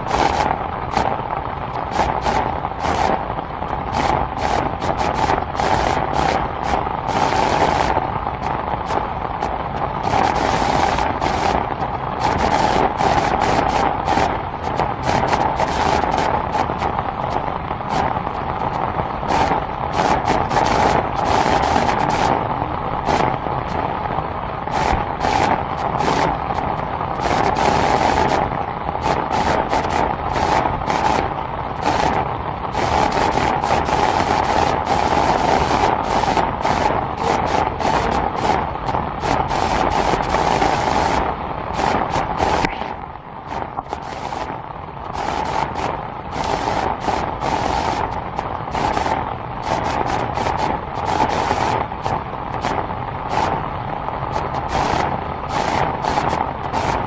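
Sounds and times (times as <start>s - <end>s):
heavy rain hissing: 0.0s - 57.0s
sharp rain taps: 0.0s - 57.0s.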